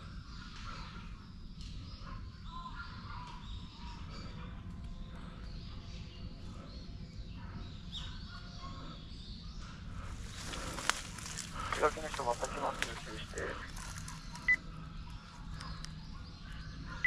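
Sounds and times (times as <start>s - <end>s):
steady low rumble: 3.4s - 17.0s.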